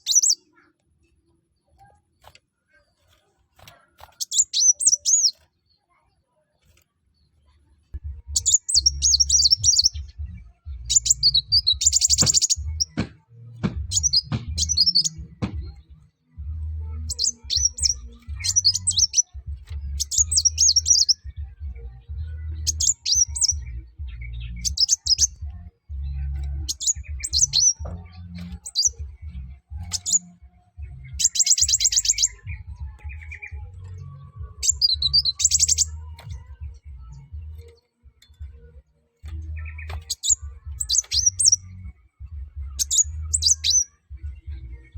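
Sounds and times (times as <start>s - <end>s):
bird chirping trills: 0.0s - 44.9s
low rumbling hum: 8.0s - 11.9s, 12.6s - 18.8s.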